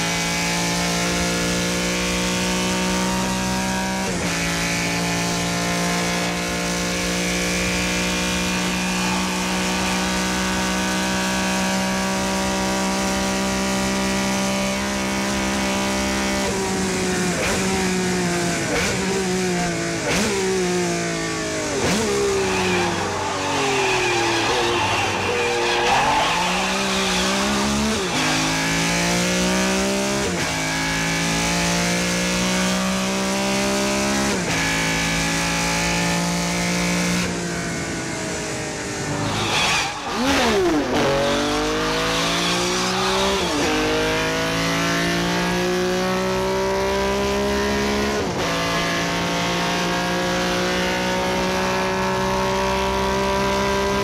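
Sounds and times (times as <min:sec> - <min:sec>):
car engine revving and shifting: 0:00.0 - 0:54.0
tyre squeal: 0:21.8 - 0:28.6, 0:39.2 - 0:41.4.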